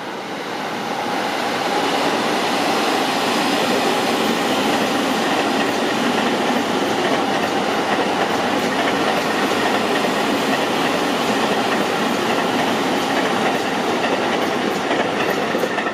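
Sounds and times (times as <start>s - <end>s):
train wheels rumbling on rails: 0.0s - 15.9s
clatter over rail joints: 6.5s - 15.9s.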